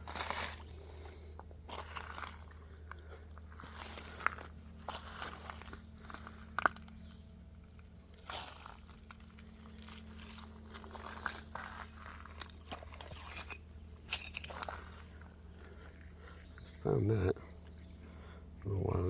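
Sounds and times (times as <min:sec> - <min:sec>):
stones and glass crunching: 0:00.0 - 0:01.0, 0:01.7 - 0:15.8.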